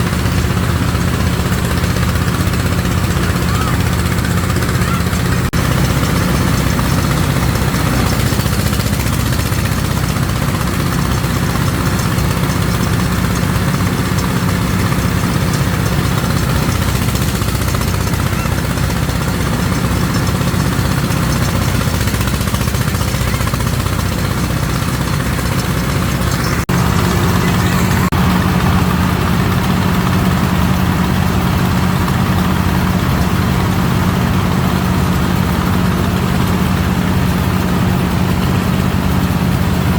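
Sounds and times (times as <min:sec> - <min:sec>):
engine humming: 0:00.0 - 0:39.9.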